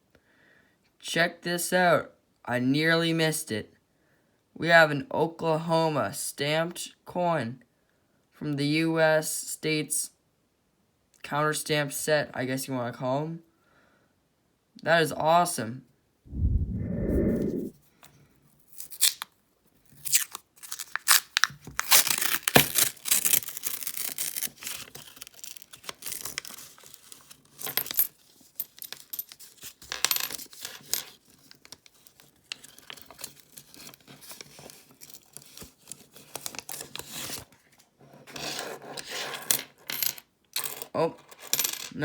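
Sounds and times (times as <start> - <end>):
paper wrapper tearing and crinkling: 20.0 - 27.4.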